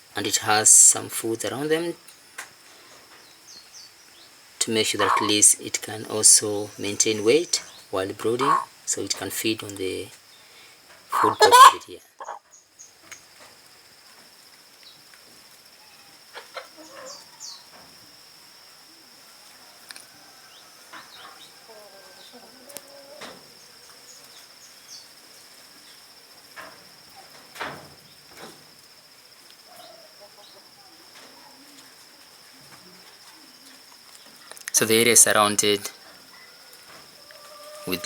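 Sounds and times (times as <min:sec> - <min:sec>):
high-pitched insect trill: 0:00.0 - 0:38.0
birds chirping: 0:02.8 - 0:13.3, 0:33.4 - 0:38.0
chickens clucking: 0:04.6 - 0:10.1, 0:11.1 - 0:12.4, 0:16.3 - 0:17.8, 0:20.7 - 0:24.4, 0:34.8 - 0:38.0.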